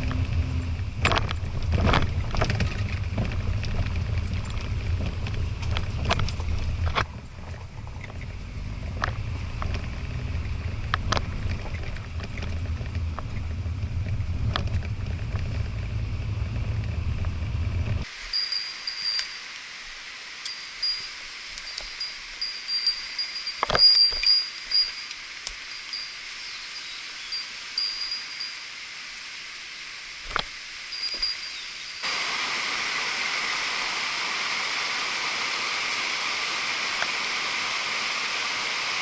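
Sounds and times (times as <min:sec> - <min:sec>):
engine and drivetrain rumble: 0:00.0 - 0:18.1
steady hiss: 0:18.0 - 0:39.0
high thin chirps: 0:18.3 - 0:19.6, 0:20.5 - 0:28.8, 0:30.9 - 0:32.2.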